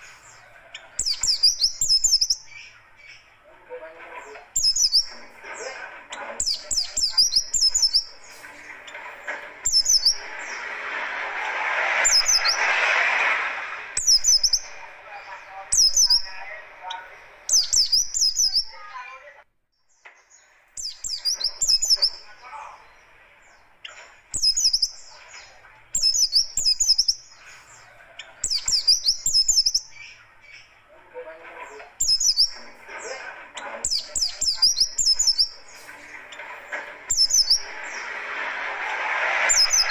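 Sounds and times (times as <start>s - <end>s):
bird chirping harsh song: 0.0s - 39.9s
rushing noise: 5.1s - 17.5s, 34.7s - 39.9s.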